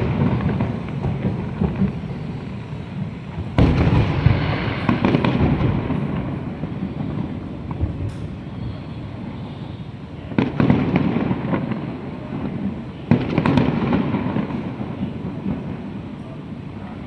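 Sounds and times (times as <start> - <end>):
firework burst: 0.0 - 16.8
fireworks crackling and rumbling: 0.0 - 17.0.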